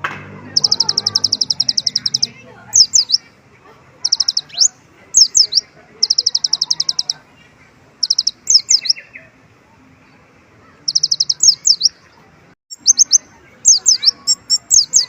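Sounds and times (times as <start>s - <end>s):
sunbird singing high trills: 0.5s - 3.3s, 4.0s - 7.2s, 8.0s - 9.2s, 10.8s - 12.0s, 12.7s - 15.0s.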